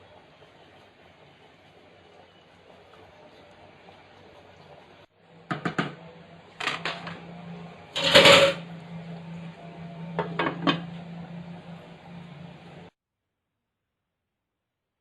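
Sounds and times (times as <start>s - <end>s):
pot and utensils clattering: 8.0s - 8.7s.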